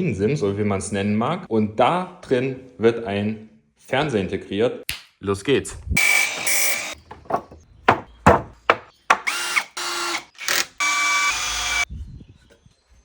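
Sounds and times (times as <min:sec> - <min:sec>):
power drill whirring: 0:06.0 - 0:07.4, 0:09.2 - 0:11.9
sharp knocks: 0:06.4 - 0:09.3.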